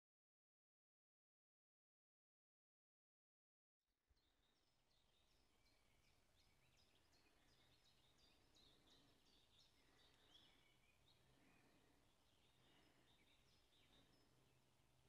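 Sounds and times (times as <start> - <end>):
faint low hum: 4.1 - 15.0.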